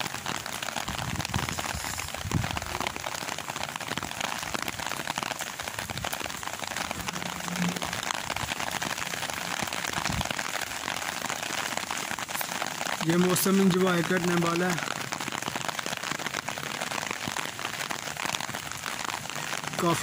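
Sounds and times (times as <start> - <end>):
heavy rain falling: 0.0 - 20.0
wind buffeting microphone: 0.8 - 3.0, 5.8 - 11.0.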